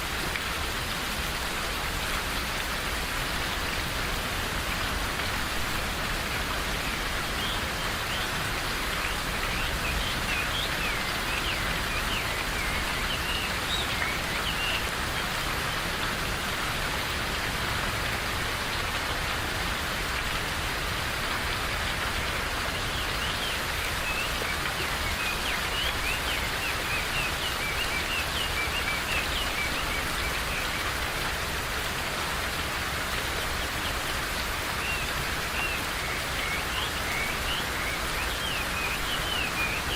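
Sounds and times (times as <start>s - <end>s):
steady rain falling: 0.0s - 39.9s
small birds chirping: 33.4s - 39.9s.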